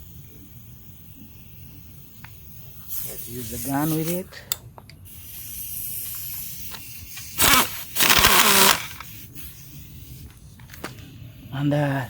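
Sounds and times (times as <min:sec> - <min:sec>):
impact gun bursts: 0:07.4 - 0:09.0.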